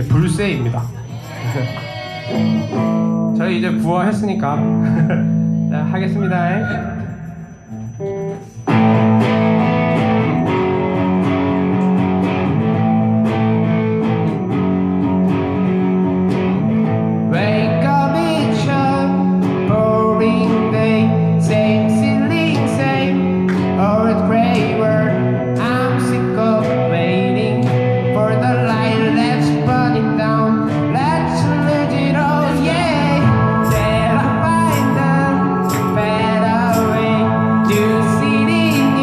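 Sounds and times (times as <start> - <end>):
live band guitar music: 0.0 - 39.0
person singing: 1.0 - 3.0, 17.3 - 39.0.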